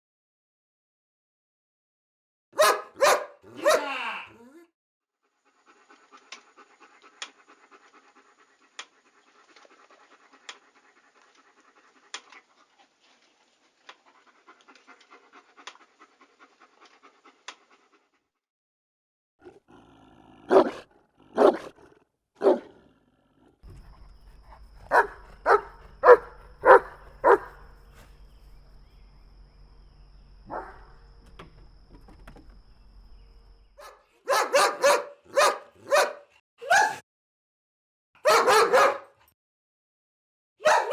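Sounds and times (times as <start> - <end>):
dog barking: 2.6 - 4.0, 20.4 - 21.8, 22.4 - 22.8, 23.7 - 27.9, 30.5 - 31.0, 33.8 - 37.0, 38.2 - 39.2, 40.6 - 40.9
dog panting: 5.2 - 18.3, 23.6 - 29.7
low hum: 23.6 - 33.9.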